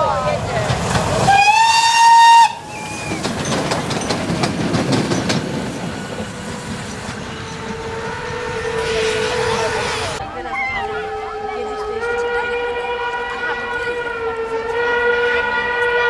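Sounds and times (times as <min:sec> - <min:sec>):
steam locomotive rumbling past: 0:00.0 - 0:16.0
steam whistle blast: 0:01.3 - 0:03.2.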